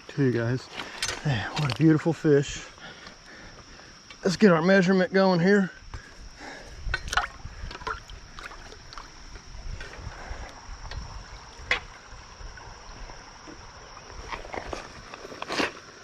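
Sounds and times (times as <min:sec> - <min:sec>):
water splashing: 0:07.1 - 0:09.2.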